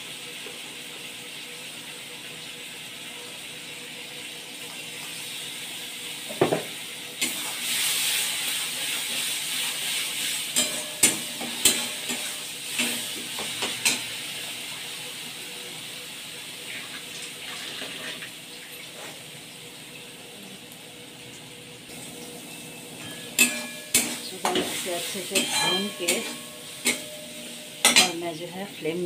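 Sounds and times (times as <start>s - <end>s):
paste sizzling in oil: 2.8s - 19.4s, 21.9s - 28.6s.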